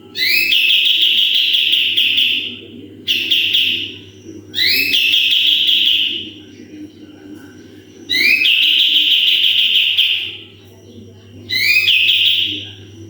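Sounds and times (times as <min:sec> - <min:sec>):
bulbul singing trilled phrases: 0:00.0 - 0:06.6, 0:07.8 - 0:13.0.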